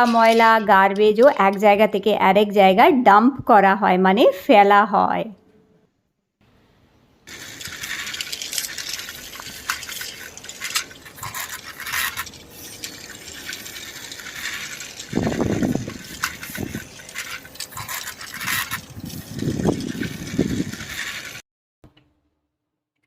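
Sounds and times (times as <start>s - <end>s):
plastic toy truck rattling: 7.3s - 21.4s.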